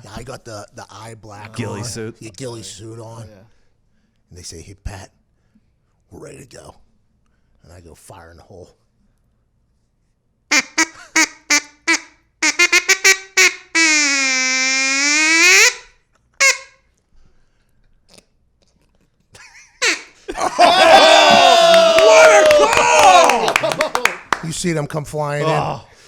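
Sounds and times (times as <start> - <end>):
duck call quacking: 10.5 - 16.8, 19.8 - 20.2
loud laughter: 19.4 - 24.3.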